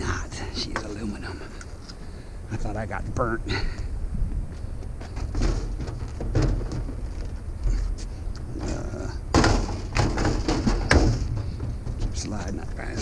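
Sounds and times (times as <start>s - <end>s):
metal scrap knocks and clanks: 5.0s - 7.4s, 8.6s - 12.6s
metal clattering crash: 5.2s - 7.1s, 9.3s - 12.2s.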